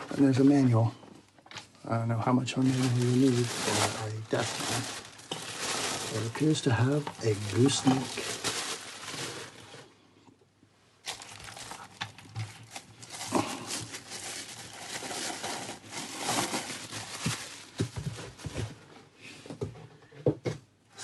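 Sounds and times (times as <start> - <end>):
plastic packaging crinkling: 2.2 - 9.9, 11.0 - 18.8.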